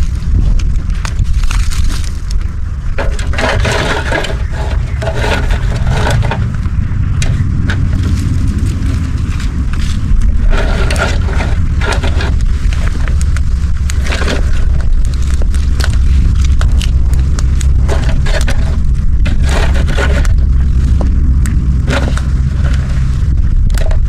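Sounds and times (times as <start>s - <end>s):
crunching and scraping: 0.0s - 24.0s
wind rumble on microphone: 0.0s - 24.0s.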